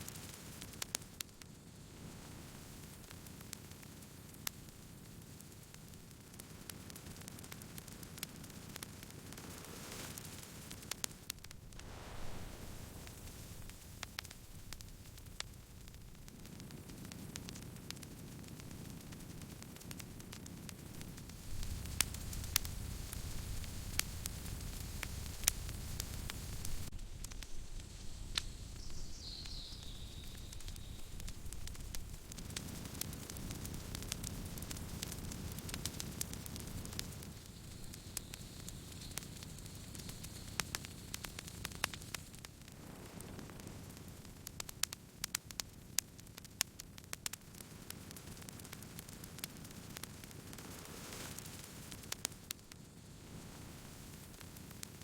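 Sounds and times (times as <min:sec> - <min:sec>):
campfire crackling and popping: 0:00.0 - 0:55.0
low steady fire hiss: 0:00.0 - 0:55.0
low rush of burning: 0:08.7 - 0:44.9.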